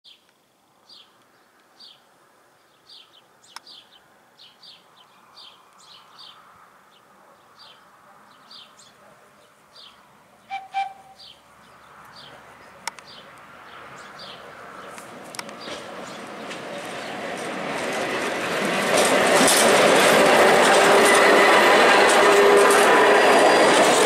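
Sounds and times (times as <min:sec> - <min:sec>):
small birds chirping: 0:00.1 - 0:17.5.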